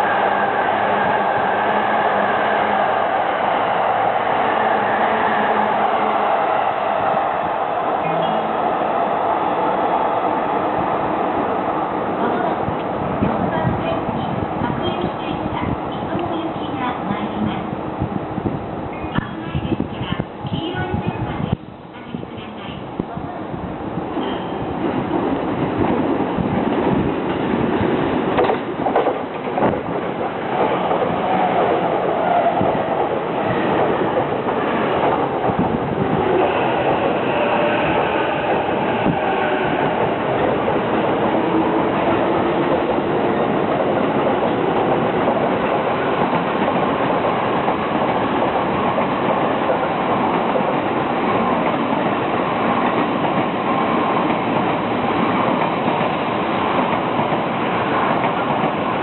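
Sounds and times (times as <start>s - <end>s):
train wheels rumbling on rails: 0.0s - 59.0s
wheels clacking over rail joints: 24.2s - 32.3s.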